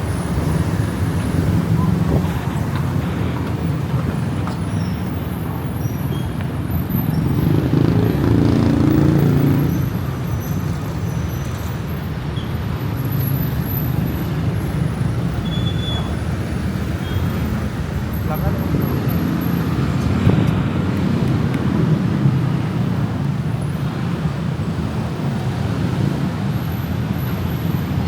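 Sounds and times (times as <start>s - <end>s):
city road traffic: 0.0s - 28.0s
loud vehicle passing: 7.1s - 10.2s.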